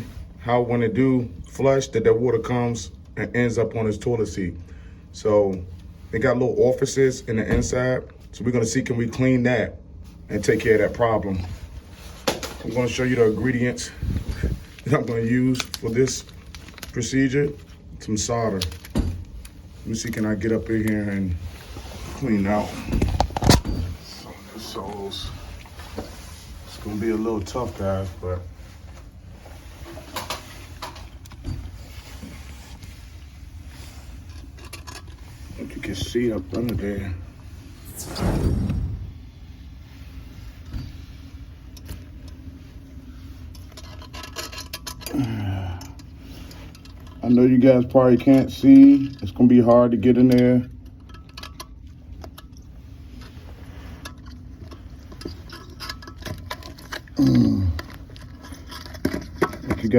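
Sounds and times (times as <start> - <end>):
low steady rumble: 0.0 - 47.6
low steady hum: 0.0 - 59.9.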